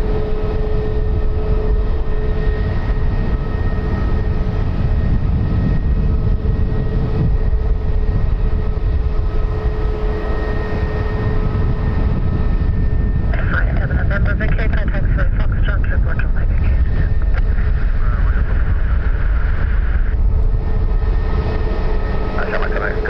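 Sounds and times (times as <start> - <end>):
aircraft engines rumbling: 0.0 - 23.0
engine whine: 0.0 - 23.0.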